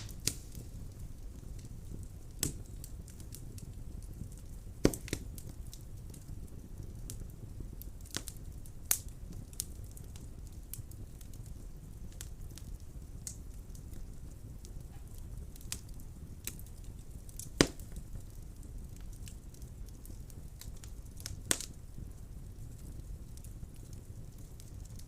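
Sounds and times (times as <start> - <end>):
fire crackling: 0.0 - 25.0
wood fire flame rumble: 0.0 - 25.0
sharp wood pops: 4.8 - 5.2, 17.6 - 17.8.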